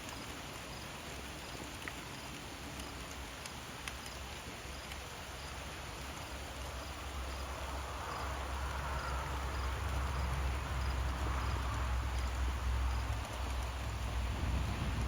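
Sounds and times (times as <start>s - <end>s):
insects chirping: 0.0s - 15.0s
distant thunder rumble: 7.7s - 15.0s.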